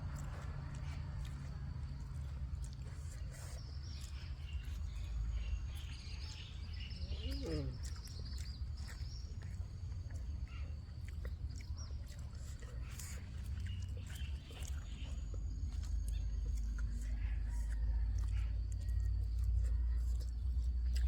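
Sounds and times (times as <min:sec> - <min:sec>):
small birds chirping: 0:00.0 - 0:21.0
steady low rumble: 0:00.0 - 0:21.0.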